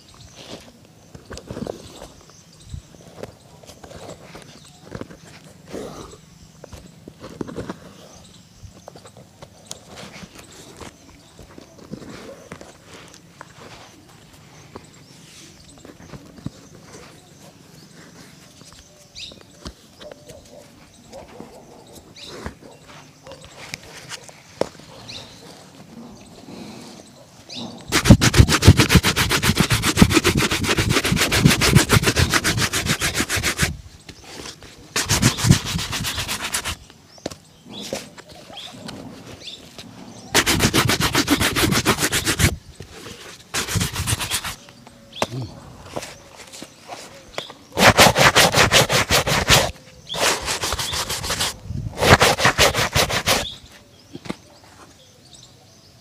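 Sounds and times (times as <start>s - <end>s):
shoe being buffed: 27.9s - 33.8s, 35.0s - 36.8s, 40.4s - 42.6s, 43.6s - 44.6s, 47.8s - 53.5s.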